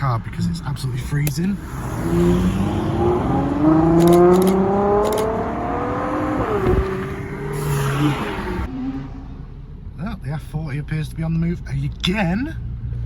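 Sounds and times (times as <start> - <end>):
car engine accelerating: 0.2 - 10.4.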